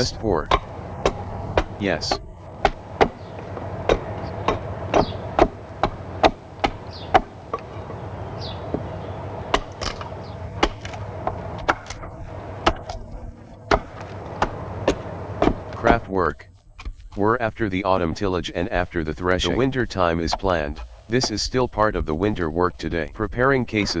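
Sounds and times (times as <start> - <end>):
hatchet chopping wood: 0.5 - 7.7, 9.5 - 13.0, 13.7 - 16.1.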